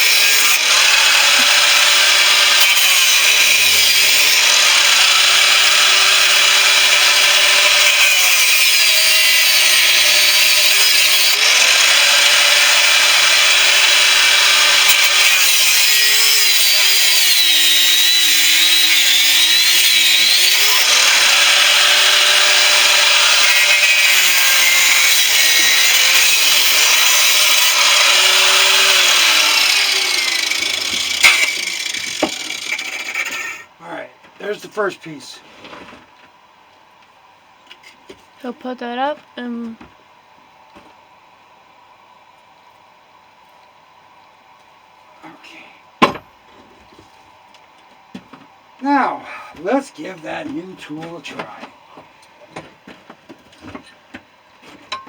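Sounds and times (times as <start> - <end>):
angle grinder cutting metal: 0.0 - 33.7.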